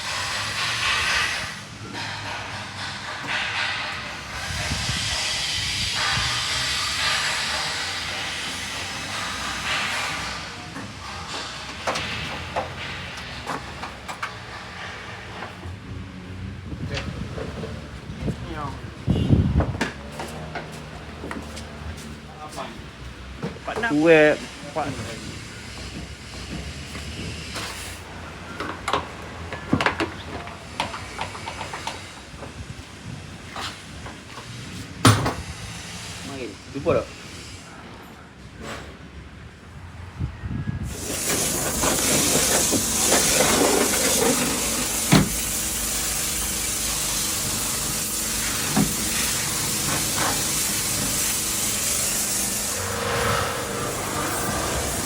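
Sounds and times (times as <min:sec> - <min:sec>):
hiss of spraying air: 0:00.0 - 0:13.4, 0:31.0 - 0:37.8, 0:40.9 - 0:55.0
car parts clicking and knocking: 0:10.8 - 0:14.5, 0:28.6 - 0:32.6.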